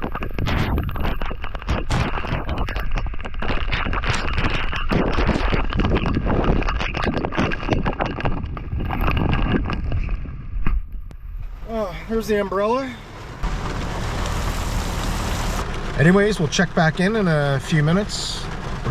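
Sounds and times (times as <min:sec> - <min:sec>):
wind noise: 0:00.0 - 0:11.6
heavy rain falling: 0:13.1 - 0:16.0
raindrops striking close: 0:13.4 - 0:18.9.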